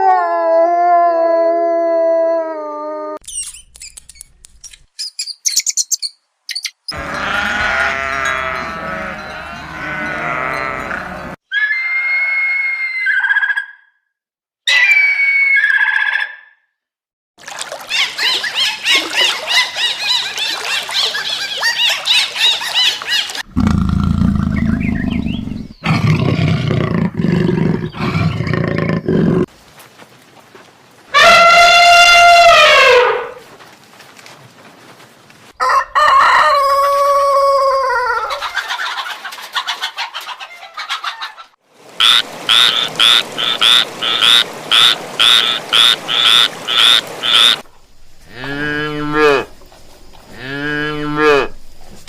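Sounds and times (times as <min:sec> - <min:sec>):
bending animal calls: 0:06.8 - 0:13.8, 0:42.0 - 0:52.0
high even animal cries: 0:06.9 - 0:13.7, 0:31.2 - 0:33.4, 0:48.2 - 0:49.6
low loud animal calls: 0:42.0 - 0:52.0.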